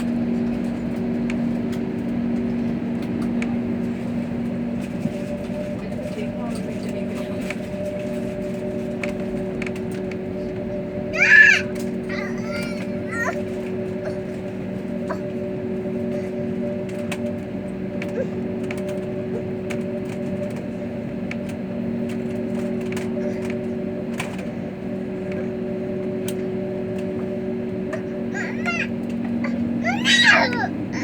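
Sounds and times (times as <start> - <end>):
airliner cabin drone: 0.0 - 31.0.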